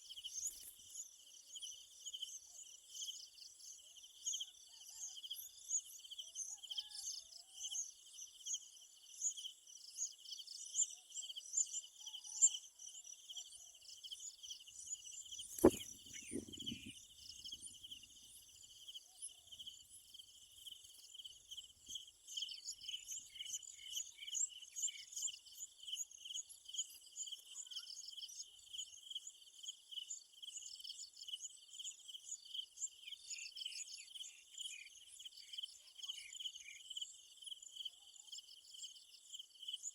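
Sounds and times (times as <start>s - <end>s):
sharp knock: 15.6s - 16.9s.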